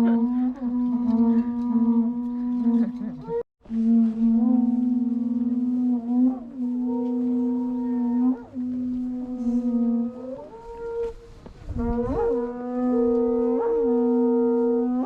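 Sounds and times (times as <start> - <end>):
horn-like wind instrument: 0.0 - 15.0.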